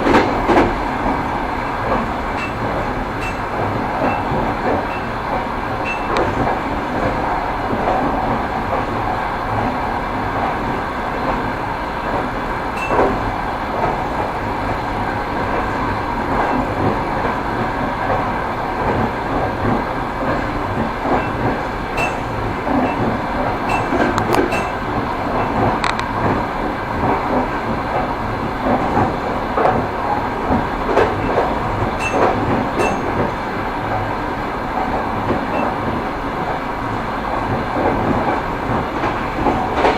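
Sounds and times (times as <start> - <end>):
clickety-clack of rail joints: 0.0 - 39.9
train wheels rumbling: 0.0 - 39.9.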